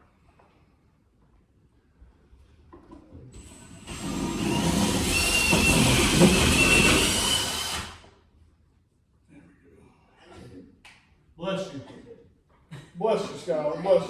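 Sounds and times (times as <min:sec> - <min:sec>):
power tool hissing and whining: 0:03.4 - 0:08.0.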